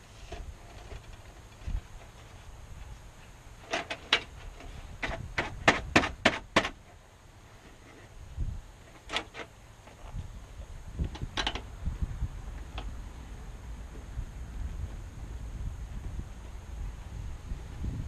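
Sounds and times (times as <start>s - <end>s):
low steady background noise: 0.0s - 18.0s
sharp clicks and knocks: 3.6s - 6.9s, 11.0s - 11.7s.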